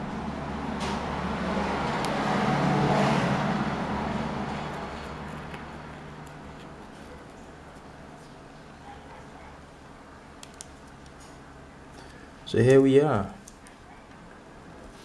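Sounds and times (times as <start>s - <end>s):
road vehicle passing by: 0.0s - 7.1s.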